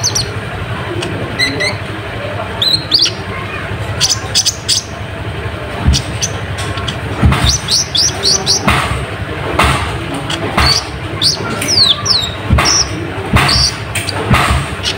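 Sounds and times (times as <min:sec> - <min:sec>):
sunbird chirping: 0:00.0 - 0:00.5, 0:01.2 - 0:05.1, 0:05.7 - 0:08.7, 0:10.3 - 0:14.9
thumps and rustles: 0:05.8 - 0:11.8, 0:12.4 - 0:14.9.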